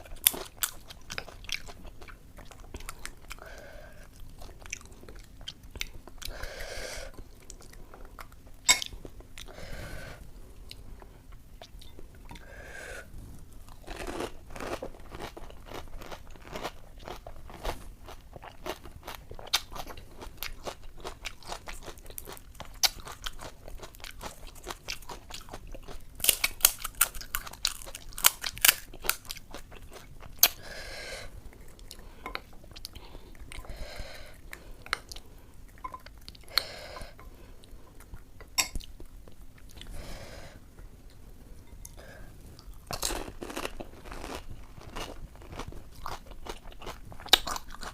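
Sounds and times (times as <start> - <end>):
crisp shells crunching when bitten: 26.2 - 30.6.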